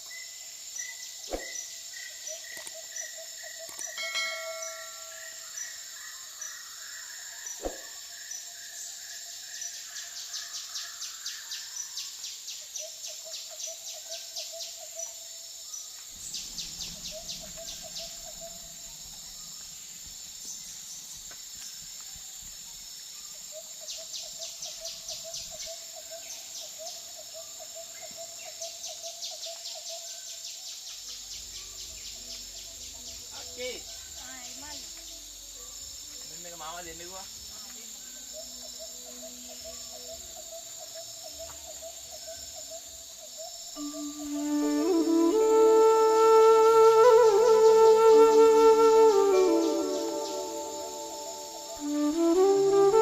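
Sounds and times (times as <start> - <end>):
insects chirring: 0.0 - 53.0
low trilling call: 43.8 - 53.0.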